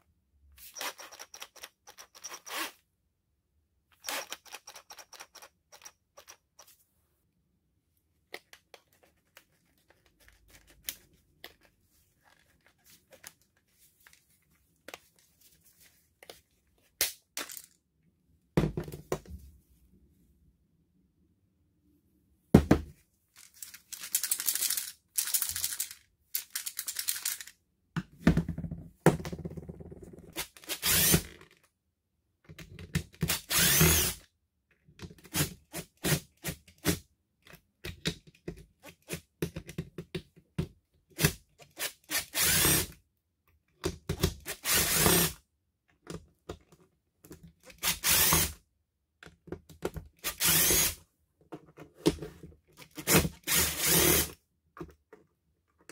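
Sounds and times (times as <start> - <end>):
cordless drill motor bursts: 30.7 - 31.2, 33.3 - 34.2, 42.1 - 42.9, 44.5 - 45.3, 47.8 - 48.5, 50.2 - 51.0, 53.0 - 54.3.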